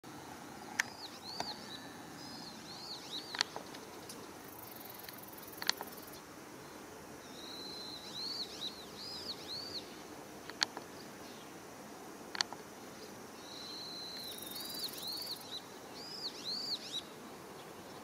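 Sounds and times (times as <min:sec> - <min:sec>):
small bird singing: 0:00.5 - 0:10.0, 0:12.9 - 0:18.0
sharp clicks: 0:03.2 - 0:04.2, 0:04.9 - 0:06.0, 0:12.3 - 0:12.6.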